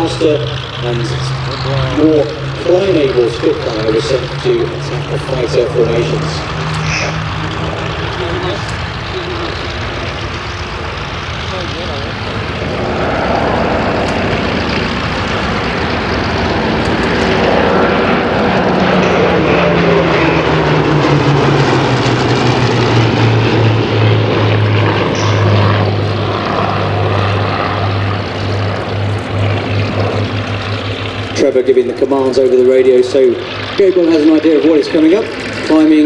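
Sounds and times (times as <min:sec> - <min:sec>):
propeller planes passing: 0:00.0 - 0:36.0.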